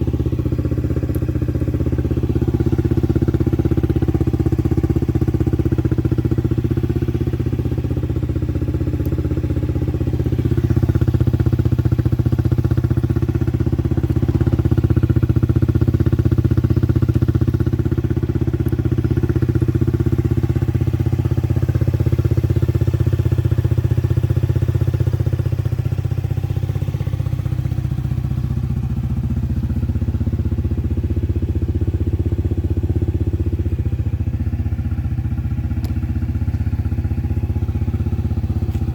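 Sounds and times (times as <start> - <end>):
scooter engine idling: 0.0 - 38.9.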